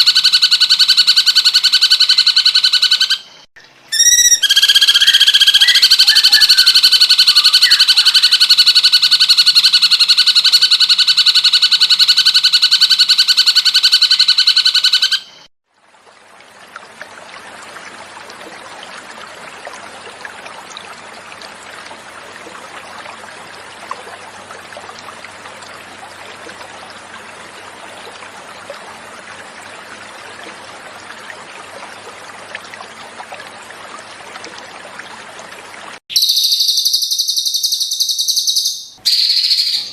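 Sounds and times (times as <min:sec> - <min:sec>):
water flowing gently: 0:00.0 - 0:39.9
bird rapid trill: 0:03.9 - 0:08.9, 0:36.1 - 0:39.9.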